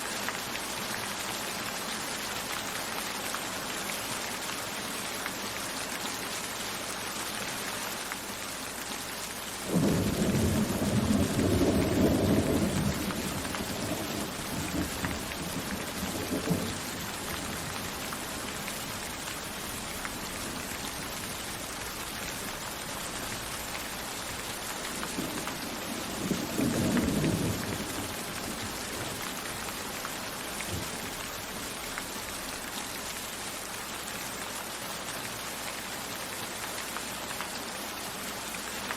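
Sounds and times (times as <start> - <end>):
steady rain falling: 0.0 - 38.9
thunder clap and rumble: 9.7 - 17.9, 25.1 - 29.2.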